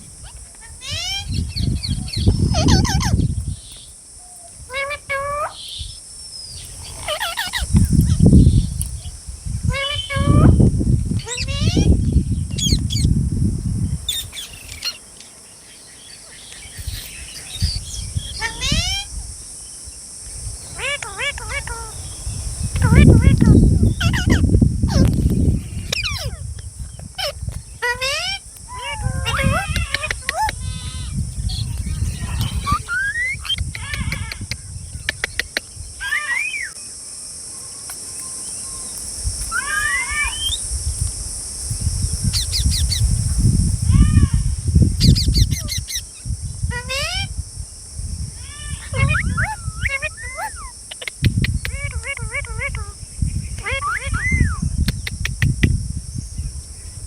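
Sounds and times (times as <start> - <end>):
high insect-like hiss: 0.0 - 57.0
parrot chirps and squawks: 0.2 - 3.2, 4.7 - 5.8, 6.8 - 7.7, 9.7 - 10.6, 11.2 - 11.9, 18.3 - 19.1, 20.8 - 22.1, 22.8 - 25.1, 25.8 - 26.4, 27.2 - 36.8, 39.5 - 40.6, 46.7 - 47.3, 48.4 - 53.0, 53.6 - 54.6
bird calls and squeal: 0.2 - 5.9, 6.5 - 8.3, 9.7 - 10.6, 16.2 - 19.2, 20.7 - 26.5, 27.2 - 36.8, 39.5 - 40.6, 46.7 - 47.3, 48.4 - 54.7
sharp clicks: 33.5 - 35.7, 50.9 - 51.8.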